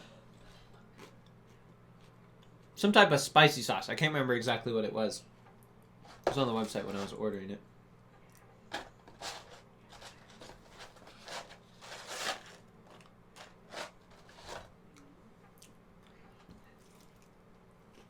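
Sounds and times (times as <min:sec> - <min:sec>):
person chewing crunchy food: 0:16.8 - 0:18.0.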